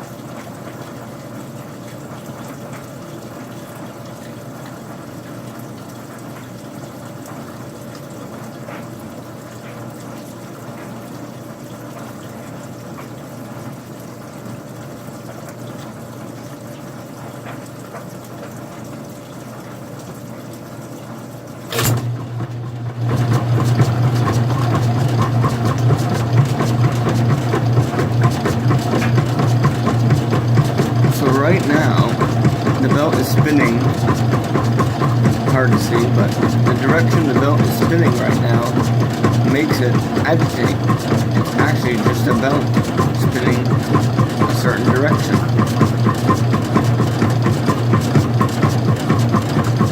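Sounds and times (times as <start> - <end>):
washing machine filling with water: 0.0 - 49.9
washing machine motor humming and rattling: 0.0 - 49.9
sharp click: 21.7 - 22.0.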